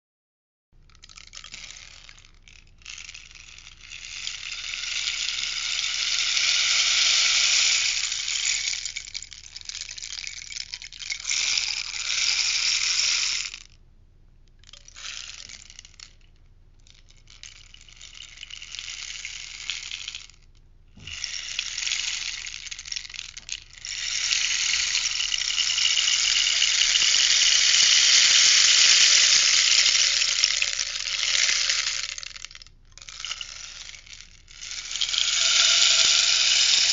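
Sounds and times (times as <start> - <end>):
rainstick rushing patter: 1.1 - 3.0, 3.6 - 13.5, 21.0 - 36.9.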